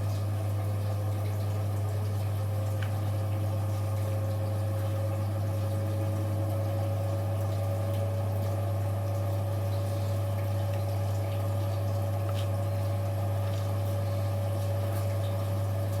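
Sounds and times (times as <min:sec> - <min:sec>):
washing machine running: 0:00.0 - 0:16.0.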